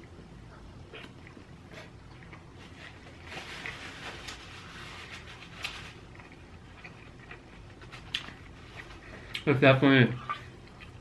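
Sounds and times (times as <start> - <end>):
chewing with wet mouth clicks: 6.1 - 9.5, 10.2 - 11.0.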